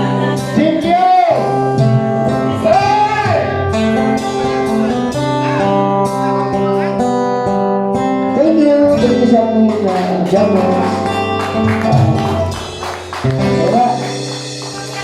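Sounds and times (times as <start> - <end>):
guitar: 0.0 - 15.0
person singing: 9.7 - 15.0.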